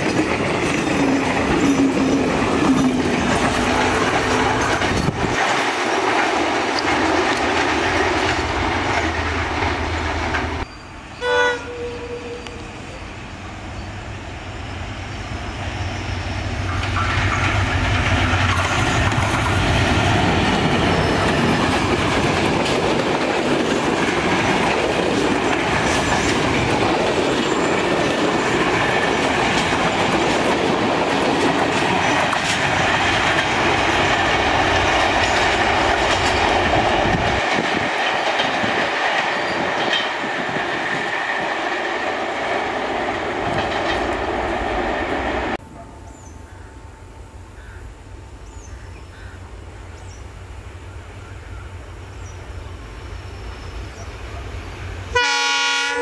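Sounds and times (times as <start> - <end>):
train wheels clattering over joints: 0.0 - 10.7, 16.6 - 45.1
diesel locomotive low rumble: 0.0 - 56.0.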